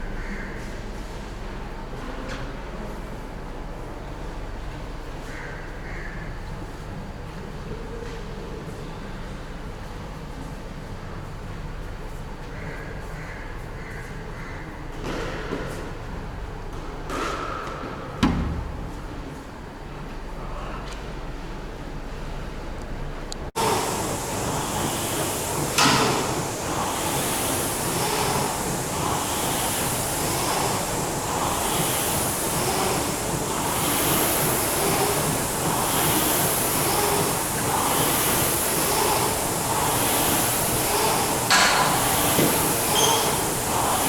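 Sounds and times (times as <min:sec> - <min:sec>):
sea water rushing: 0:23.6 - 0:44.0.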